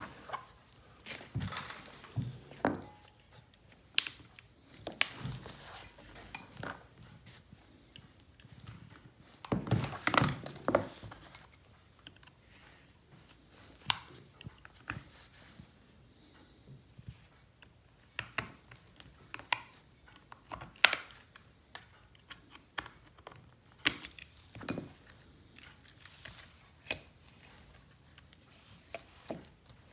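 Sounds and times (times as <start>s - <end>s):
small tools clicking and tapping: 1.4s - 4.2s, 5.0s - 6.8s, 9.4s - 12.3s, 18.2s - 27.0s.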